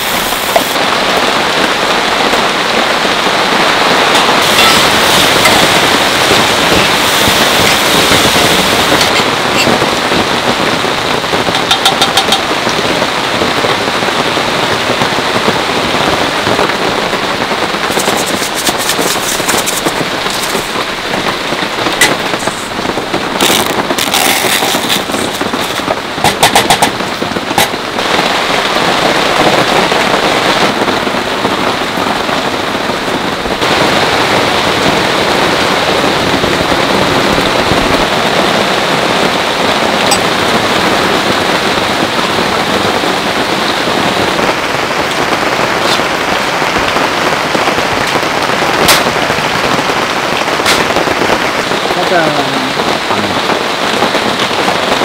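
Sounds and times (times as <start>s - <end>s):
heavy rain falling: 0.0s - 55.0s
rapid clicking and crackling: 17.5s - 27.9s.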